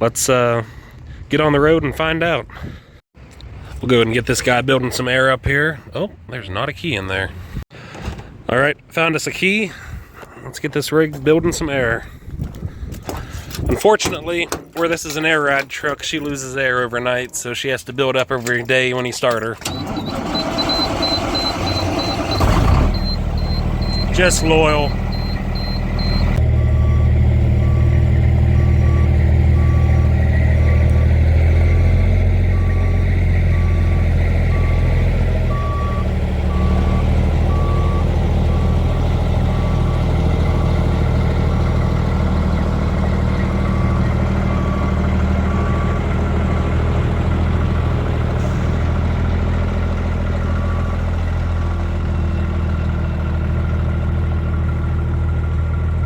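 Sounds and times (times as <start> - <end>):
diesel truck engine idling: 19.6 - 56.0
warning beeps: 19.7 - 38.8.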